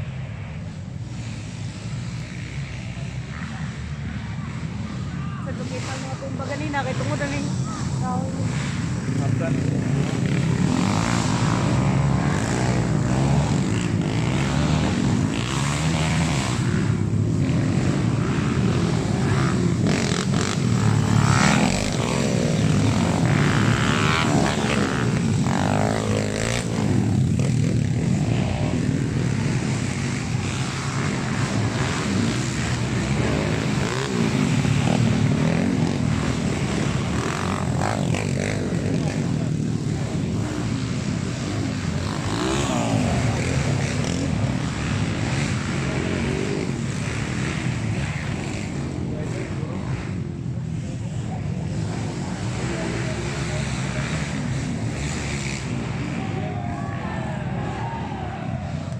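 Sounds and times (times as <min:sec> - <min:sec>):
motorcycle engines revving: 0:00.0 - 0:58.9.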